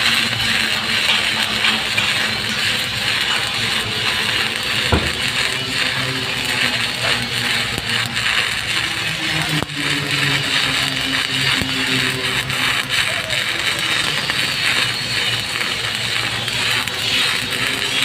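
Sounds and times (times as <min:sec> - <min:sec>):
welding arc crackling: 0:00.0 - 0:18.0.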